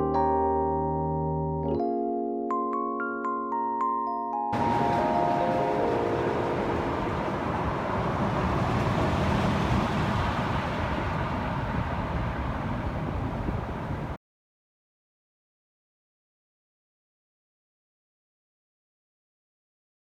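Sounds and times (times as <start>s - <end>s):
electric piano notes: 0.0s - 8.9s
street traffic: 4.6s - 14.2s.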